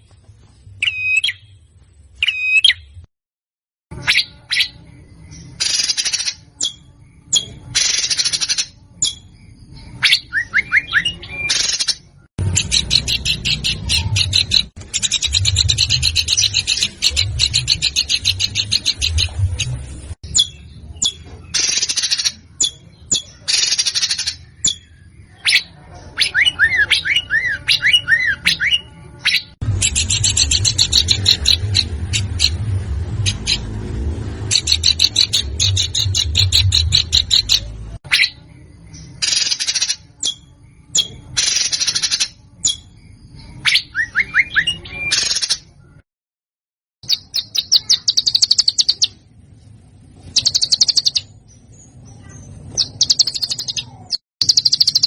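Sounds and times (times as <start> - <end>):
bird whistled notes: 0.8 - 1.5, 2.2 - 2.9, 4.0 - 19.3, 39.2 - 45.5
songbird rattling song: 3.9 - 45.8, 47.0 - 49.3, 50.2 - 55.0.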